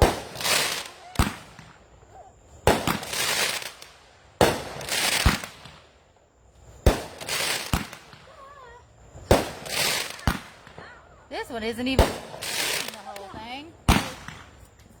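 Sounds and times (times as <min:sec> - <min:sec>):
fireworks sharp bang: 0:00.0 - 0:01.8, 0:02.6 - 0:03.8, 0:04.4 - 0:05.8, 0:06.8 - 0:08.4, 0:09.2 - 0:10.9, 0:11.8 - 0:14.7
fireworks launch pops: 0:00.0 - 0:06.0, 0:06.6 - 0:08.5, 0:09.2 - 0:11.0, 0:11.9 - 0:15.0
fireworks hissing crackle: 0:00.0 - 0:15.0.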